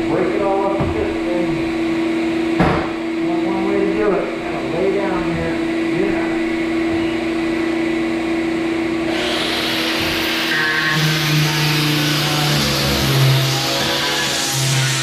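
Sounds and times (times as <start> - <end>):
fan-like hum: 0.0 - 15.0
power tool grinding wooden floor: 9.1 - 15.0.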